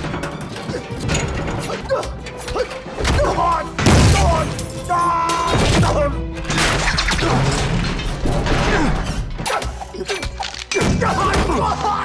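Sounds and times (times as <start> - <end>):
film score music: 0.0 - 12.0
crashing impacts and blows: 2.8 - 9.5.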